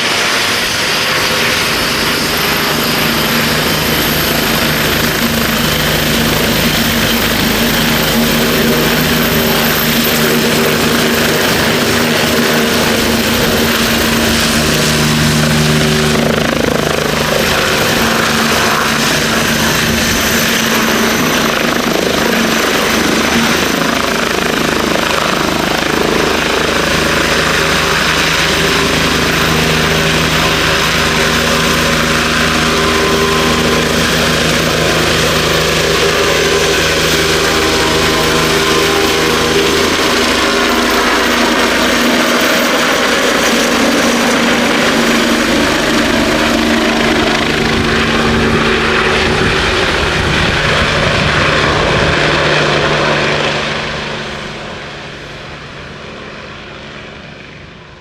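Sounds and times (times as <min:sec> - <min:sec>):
helicopter rotor and engine noise: 0:00.0 - 0:58.0
high turbine whine: 0:00.0 - 0:58.0.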